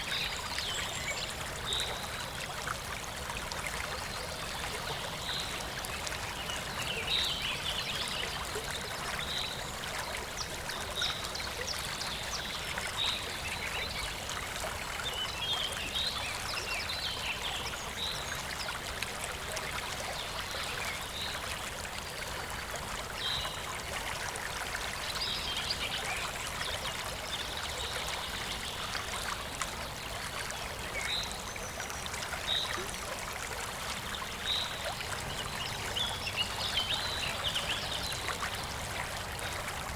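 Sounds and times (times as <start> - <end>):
shallow stream flowing: 0.0 - 39.9.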